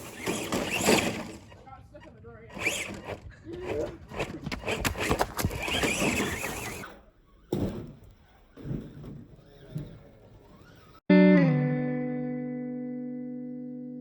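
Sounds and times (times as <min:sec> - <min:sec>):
strummed guitar chord: 0:11.1 - 0:14.0.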